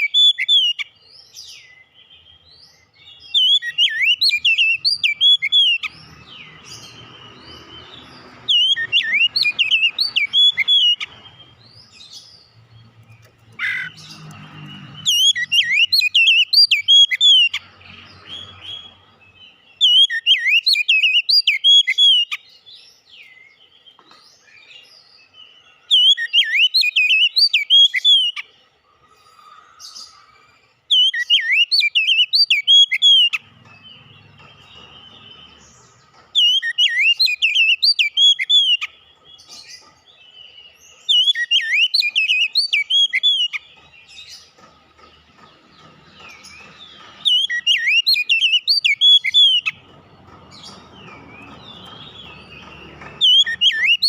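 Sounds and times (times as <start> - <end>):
bird singing whistled phrases: 3.3 - 5.9, 8.5 - 11.1, 30.9 - 33.4, 36.4 - 38.9, 41.1 - 43.6.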